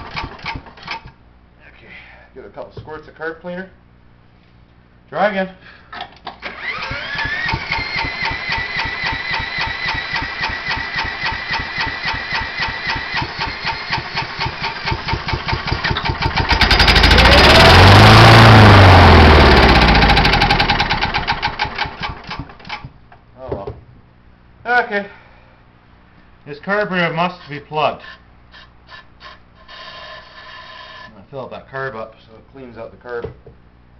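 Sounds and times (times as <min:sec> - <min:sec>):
electric drill whining: 0:06.4 - 0:15.1, 0:15.8 - 0:20.9
engine cranking pulses: 0:06.4 - 0:22.9
engine running loud: 0:12.5 - 0:21.4.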